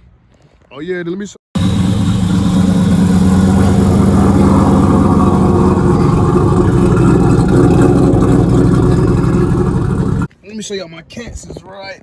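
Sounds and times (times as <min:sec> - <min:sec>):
car engine idling: 0:01.6 - 0:10.3.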